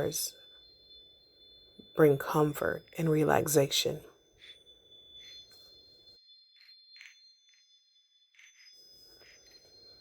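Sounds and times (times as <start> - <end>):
soft chimes ringing: 0.0 - 10.0.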